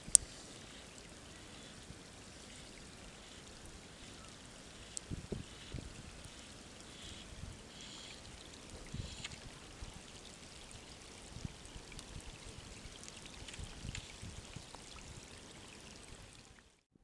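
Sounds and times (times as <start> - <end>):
water dripping: 0.0 - 16.8.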